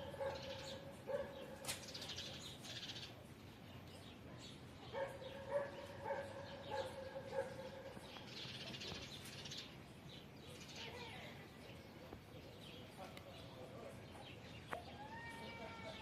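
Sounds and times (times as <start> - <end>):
pitched bird cry: 0.0 - 3.2, 14.6 - 16.0
birds chirping: 0.0 - 16.0.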